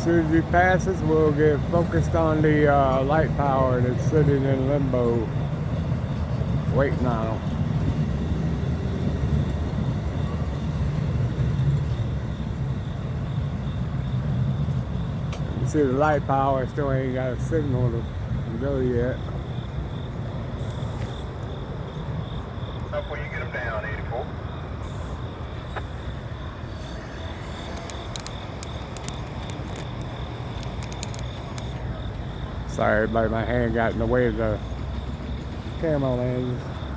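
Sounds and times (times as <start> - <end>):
diesel locomotives idling: 0.0 - 36.9
passenger train passing: 0.0 - 36.9
faint high-pitched ticks: 27.5 - 31.8.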